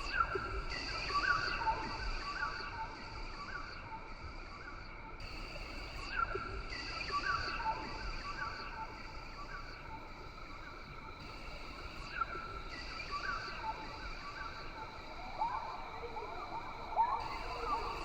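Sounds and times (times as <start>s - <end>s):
chorus of insects: 6.8s - 18.0s.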